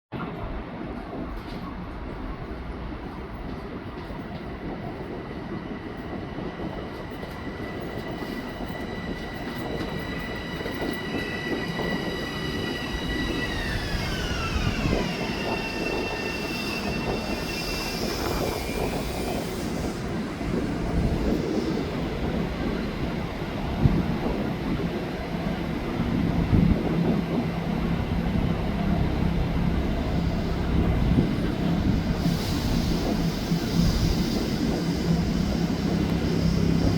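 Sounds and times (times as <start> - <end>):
train rumble: 0.1 - 36.9
high-pitched wheel squeal: 10.5 - 19.9.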